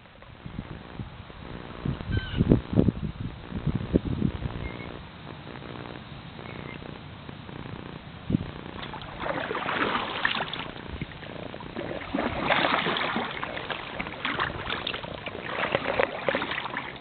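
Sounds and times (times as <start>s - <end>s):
kayak paddle splashing in water: 8.8s - 17.0s.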